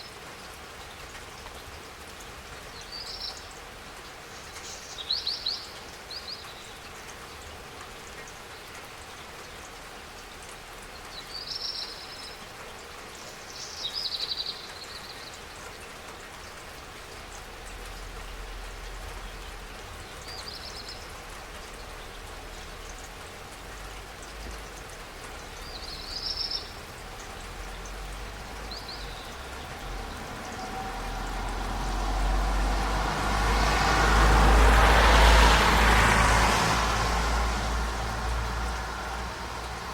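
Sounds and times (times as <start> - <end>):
rain falling: 0.0 - 39.9
bird chirping: 25.6 - 30.8
passing car: 26.9 - 39.9.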